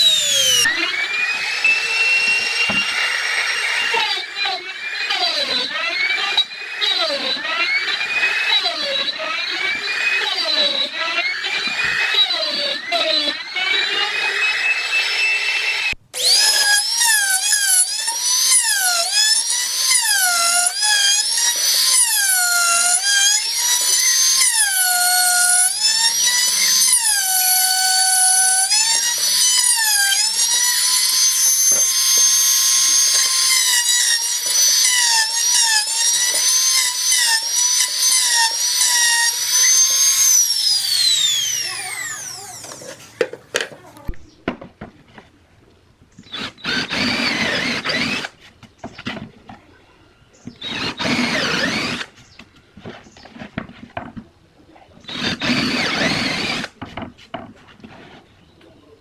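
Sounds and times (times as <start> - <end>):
power tool motor whining: 0.0 - 44.2, 46.2 - 48.4, 50.5 - 52.2, 55.1 - 56.8.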